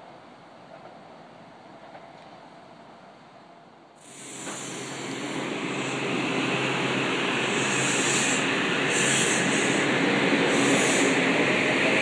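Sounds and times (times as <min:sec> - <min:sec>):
train rumble and rail noise: 0:00.0 - 0:12.0
short bursts of high hiss: 0:04.0 - 0:11.3.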